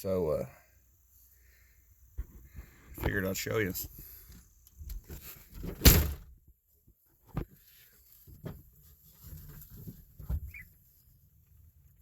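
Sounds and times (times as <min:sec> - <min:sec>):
faint knocks and thumps: 0:02.2 - 0:03.2, 0:06.9 - 0:10.6.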